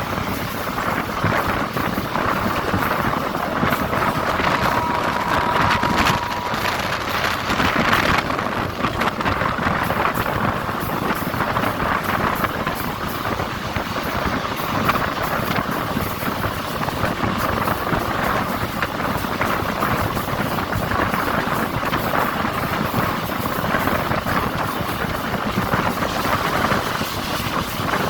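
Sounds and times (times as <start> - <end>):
train clattering: 0.0 - 28.0
train rumble and hiss: 0.0 - 28.0.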